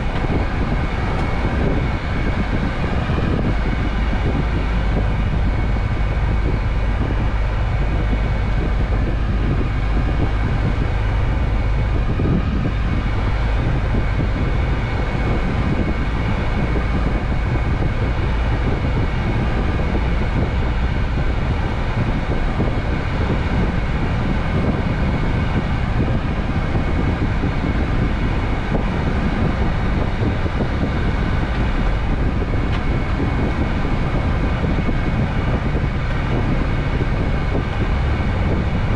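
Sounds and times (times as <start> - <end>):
road noise: 0.0 - 38.9
truck engine: 0.0 - 38.9.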